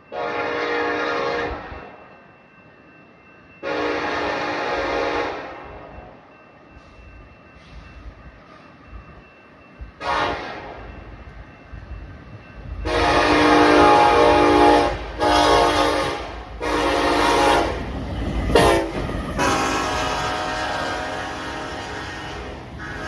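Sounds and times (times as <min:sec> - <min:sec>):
passing train rumble: 0:00.0 - 0:23.0
locomotive air horn blasts: 0:00.1 - 0:01.9, 0:03.6 - 0:05.6, 0:10.0 - 0:10.8, 0:12.8 - 0:17.9, 0:18.5 - 0:23.0.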